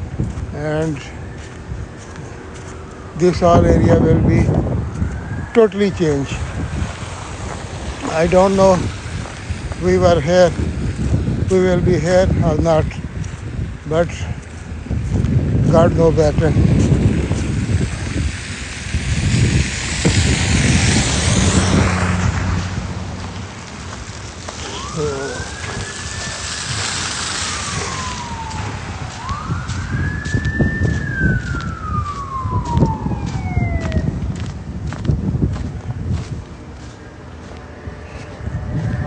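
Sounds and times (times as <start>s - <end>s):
street traffic: 0.0s - 39.0s
wind noise: 0.0s - 39.0s
distant siren wailing: 0.7s - 10.3s, 16.0s - 35.0s, 37.1s - 39.0s.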